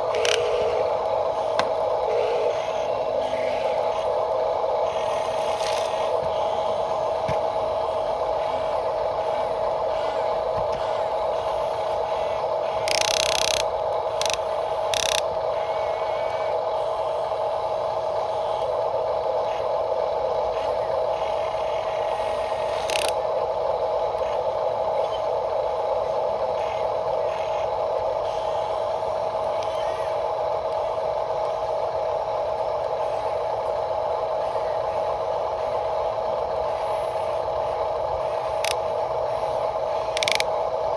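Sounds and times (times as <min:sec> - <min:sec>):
small electric motors whining: 0:00.0 - 0:32.0, 0:32.7 - 0:40.9.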